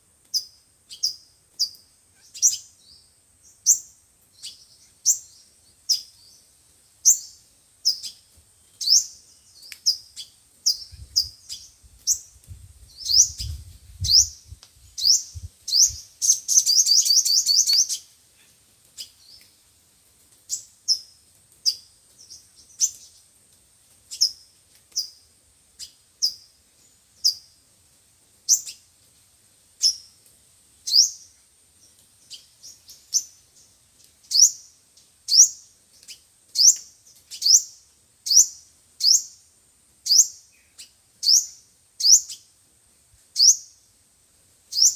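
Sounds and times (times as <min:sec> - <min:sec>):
high descending bird chirps: 0:15.0 - 0:18.0
rapid bird trill: 0:15.0 - 0:18.1.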